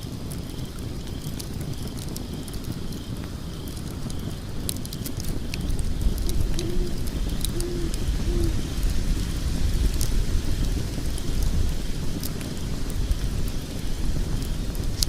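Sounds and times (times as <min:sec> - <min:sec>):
wood fire crackling: 0:00.0 - 0:15.0
low hooting notes: 0:05.2 - 0:08.9.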